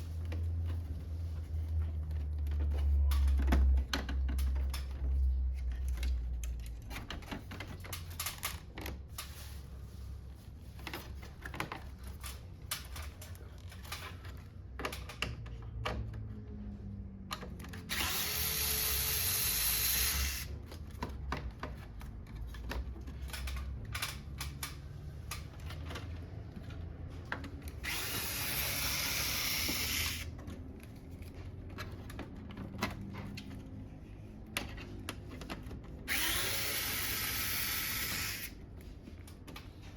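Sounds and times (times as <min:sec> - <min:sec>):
clicks and knocks of handling parts: 0:00.1 - 0:39.9
electric screwdriver running: 0:17.9 - 0:20.5, 0:27.8 - 0:30.3, 0:36.1 - 0:38.6.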